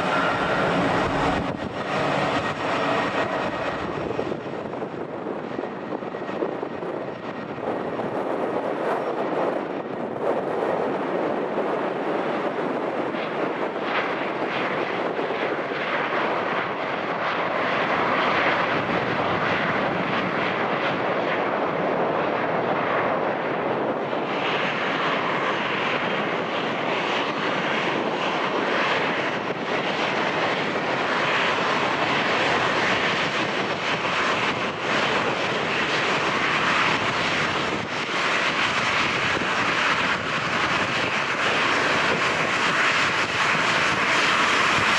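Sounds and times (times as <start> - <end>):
jet engines roaring: 0.0 - 44.9
wind buffeting microphone: 0.0 - 44.9.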